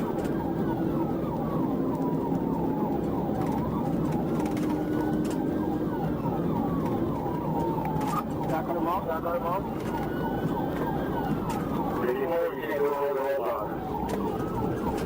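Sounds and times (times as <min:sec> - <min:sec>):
engine and road noise: 0:00.0 - 0:15.0
police siren wail: 0:00.0 - 0:15.0
police siren yelp: 0:00.0 - 0:15.0.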